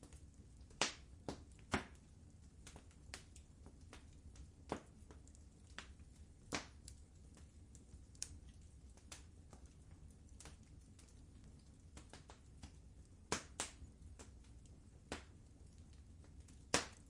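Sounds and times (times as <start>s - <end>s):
faint low hum: 0.0s - 17.0s
wood fire crackling: 0.0s - 17.0s.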